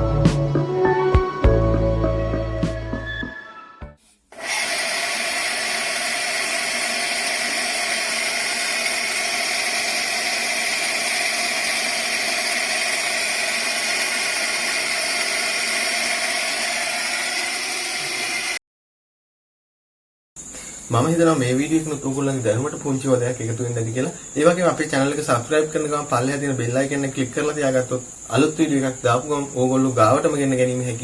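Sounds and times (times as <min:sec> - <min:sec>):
electric water pump whirring: 0:04.3 - 0:18.6.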